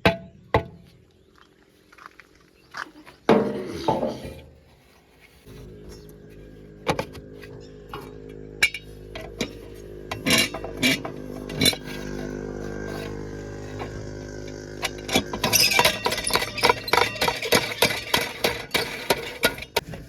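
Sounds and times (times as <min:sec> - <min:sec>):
diesel engine running: 0:05.5 - 0:19.8
metallic clanks and knocks: 0:06.8 - 0:20.0.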